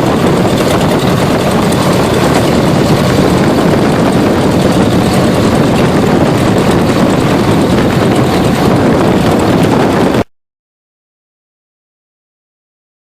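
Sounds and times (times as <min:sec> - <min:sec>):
aircraft engine droning: 0:00.0 - 0:10.3.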